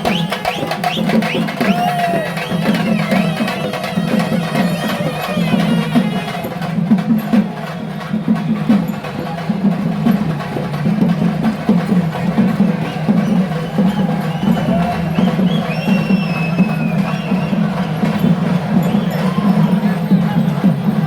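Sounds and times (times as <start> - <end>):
drums beaten: 0.0 - 21.0
voices chanting faintly: 0.0 - 21.0.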